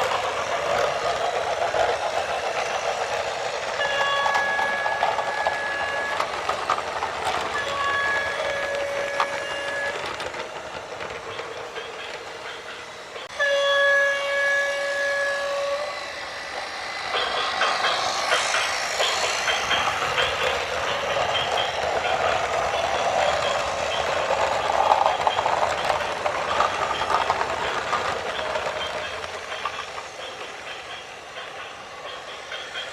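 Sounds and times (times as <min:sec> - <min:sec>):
high metallic squeals: 0:00.0 - 0:10.2, 0:12.8 - 0:32.9
train rumbling: 0:00.0 - 0:32.9
horn blasts: 0:13.3 - 0:16.0.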